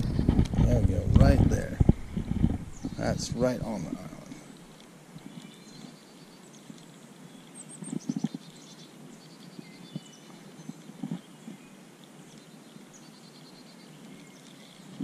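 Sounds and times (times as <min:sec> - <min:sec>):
dull low knocks: 0:00.0 - 0:04.4
birds chirping and singing: 0:00.0 - 0:15.0.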